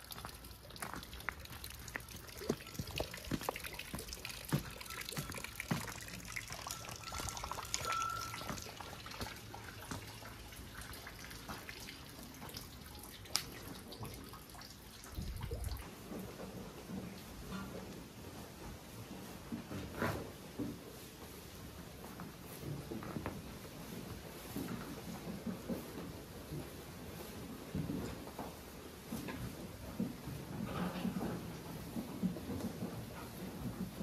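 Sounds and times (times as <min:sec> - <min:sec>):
rainwater dripping and trickling: 0:00.0 - 0:17.5.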